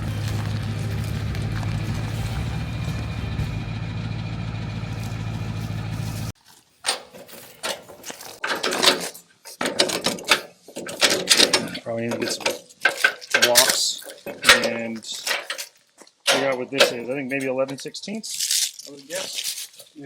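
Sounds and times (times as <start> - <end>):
engine running: 0.0 - 6.4
metal tools clinking: 6.8 - 20.0.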